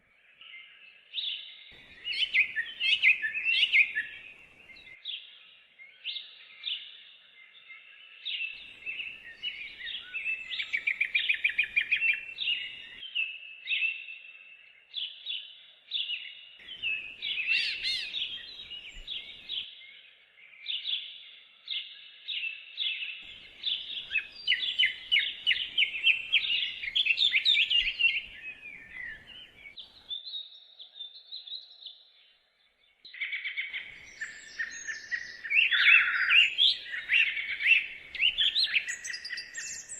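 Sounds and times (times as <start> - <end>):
songbirds trilling: 0.9 - 5.0, 8.4 - 13.0, 16.5 - 19.7, 23.1 - 30.3, 33.2 - 39.9.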